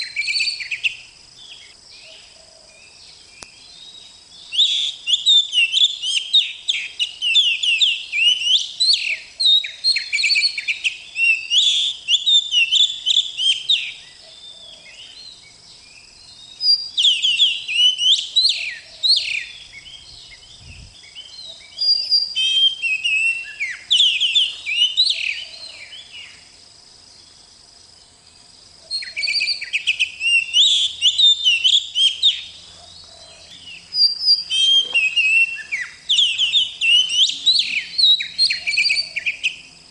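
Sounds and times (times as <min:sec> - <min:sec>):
magpie-robin singing: 0:16.5 - 0:26.2, 0:28.9 - 0:39.6.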